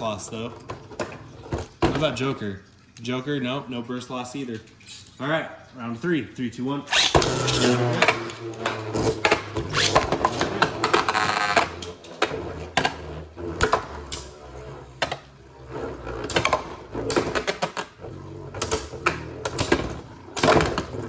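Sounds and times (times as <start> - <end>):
rattling scrape: 6.9 - 21.0
spinning tops whirring: 6.9 - 21.0.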